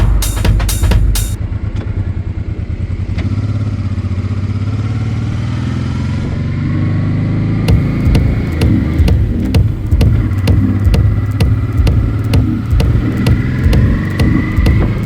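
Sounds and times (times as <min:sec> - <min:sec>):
electronic drum beat: 0:00.0 - 0:01.4, 0:07.7 - 0:15.0
motorcycle engine running: 0:07.7 - 0:15.0.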